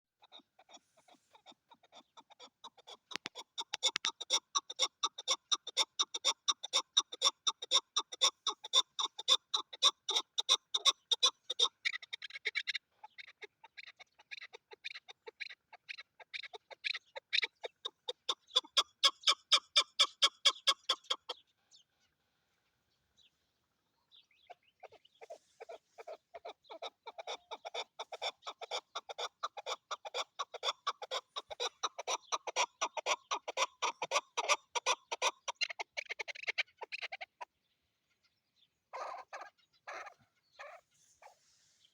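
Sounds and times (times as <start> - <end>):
partridge clucking: 2.3 - 11.4.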